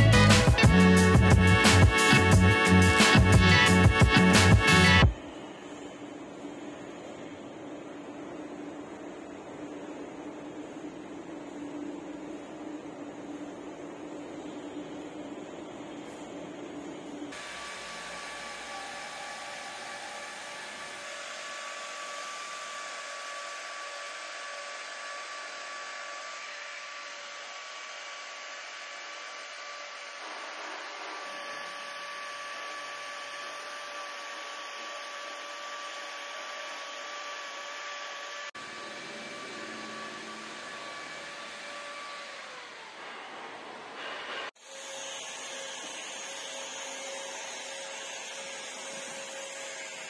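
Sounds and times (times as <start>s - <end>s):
faint steady whine: 5.1s - 23.3s
rushing blower-like machine noise: 17.3s - 46.2s.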